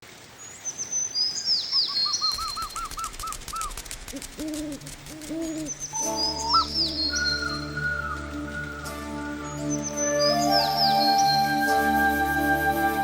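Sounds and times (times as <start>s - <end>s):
bird chirps: 1.2s - 3.8s, 5.5s - 11.6s
light patter of clicks: 2.3s - 6.0s
bird whistles sweeping downward: 5.9s - 9.2s, 9.8s - 13.0s.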